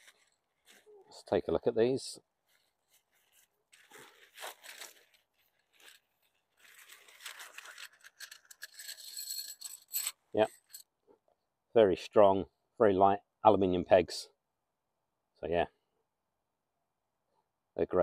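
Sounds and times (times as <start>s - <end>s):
fabric bag rustling and scraping: 2.8s - 10.1s.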